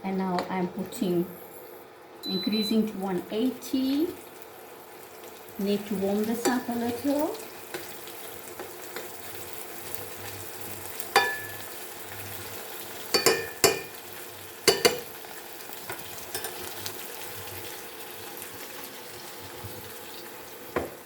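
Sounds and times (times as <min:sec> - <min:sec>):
meat sizzling in butter: 0:03.8 - 0:21.0
utensil clinking against pan: 0:11.2 - 0:11.6, 0:13.1 - 0:13.9, 0:14.7 - 0:15.0.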